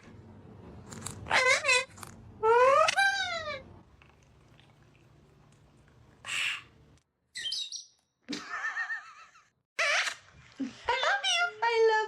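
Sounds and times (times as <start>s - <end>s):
parrot squawking: 1.3s - 1.9s, 6.2s - 6.7s.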